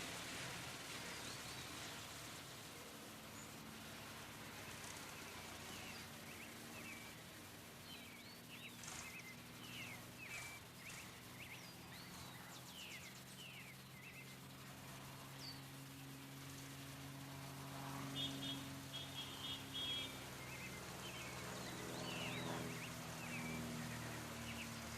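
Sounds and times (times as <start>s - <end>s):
low steady drone: 0.0s - 24.9s
birds chirping: 4.6s - 16.8s, 18.0s - 24.9s.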